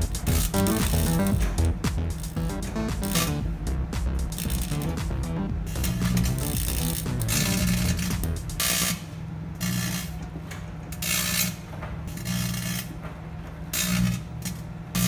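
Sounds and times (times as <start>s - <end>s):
sparking hissing bursts: 0.0s - 9.0s.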